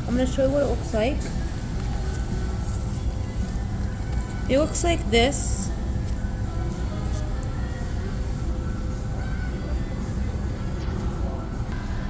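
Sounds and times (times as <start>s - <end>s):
faint music: 0.0s - 12.0s
low engine drone: 5.1s - 12.0s.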